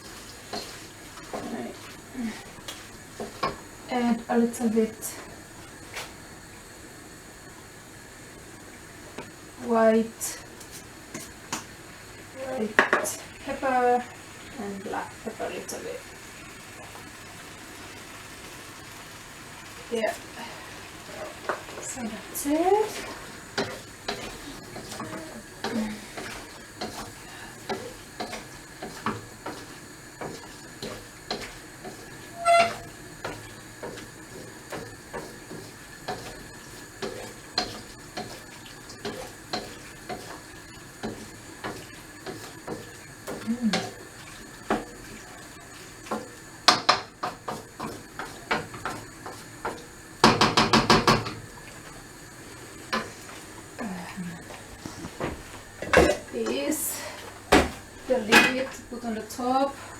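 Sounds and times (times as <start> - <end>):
food sizzling: 0.0 - 59.9
utensil knocking against pan: 23.6 - 36.4, 46.1 - 51.4.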